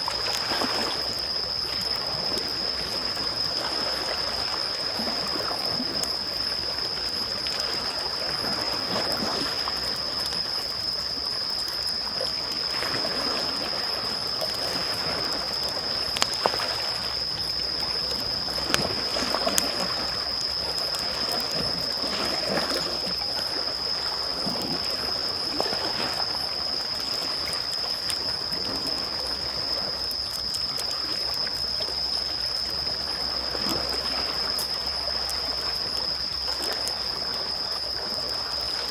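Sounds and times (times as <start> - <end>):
small waves lapping on shore: 0.0 - 38.9
campfire crackling and popping: 15.5 - 21.4.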